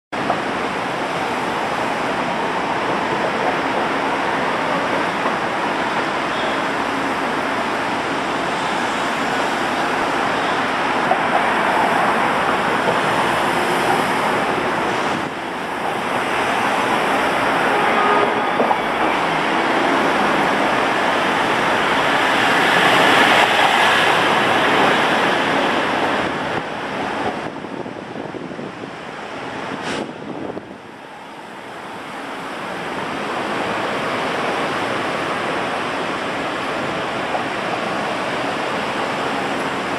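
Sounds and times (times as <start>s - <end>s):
train rushing noise: 0.2s - 39.9s.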